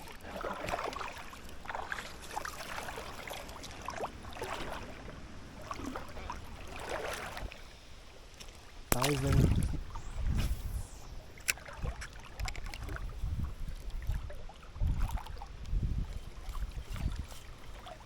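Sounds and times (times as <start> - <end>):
water sloshing and splashing: 0.0 - 18.0.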